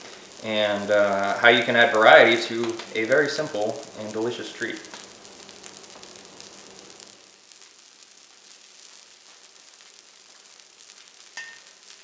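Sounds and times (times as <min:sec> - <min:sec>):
food sizzling on griddle: 0:00.0 - 0:12.0.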